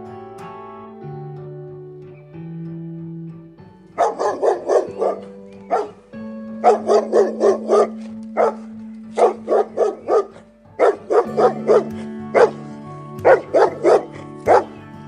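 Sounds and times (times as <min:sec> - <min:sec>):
background music: 0:00.0 - 0:15.0
dog barking: 0:04.0 - 0:14.8.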